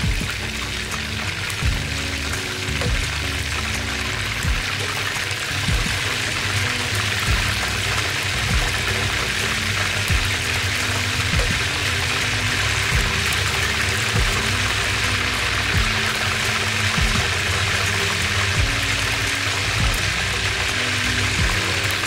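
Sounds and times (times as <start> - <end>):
chicken deep-frying in hot oil: 0.0 - 22.0
soft background music: 0.0 - 22.0.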